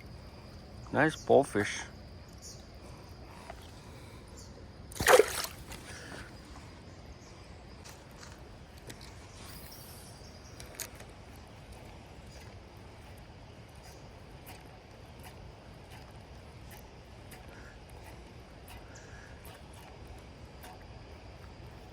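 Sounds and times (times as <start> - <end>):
short splash in water: 4.9 - 6.2.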